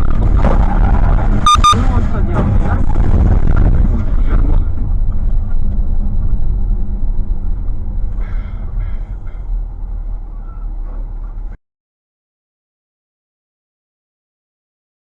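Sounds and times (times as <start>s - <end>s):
car engine and road noise: 0.0s - 11.6s.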